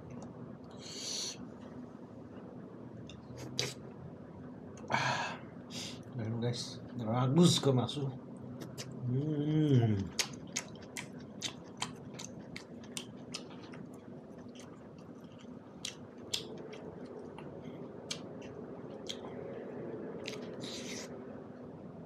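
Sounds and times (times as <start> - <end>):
mouth clicks and smacks: 8.6 - 9.0, 10.1 - 19.4, 20.2 - 21.1
chewing: 10.0 - 21.0.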